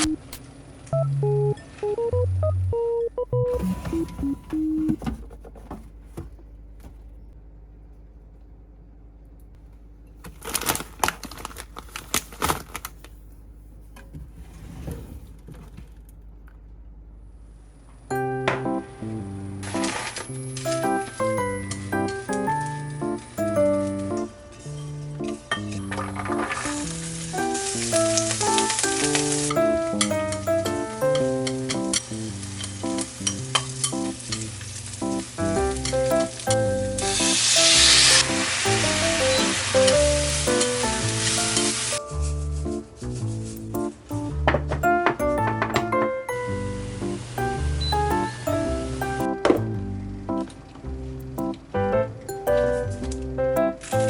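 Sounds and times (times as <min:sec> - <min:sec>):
light background music: 0:18.1 - 0:33.2, 0:35.0 - 0:54.0.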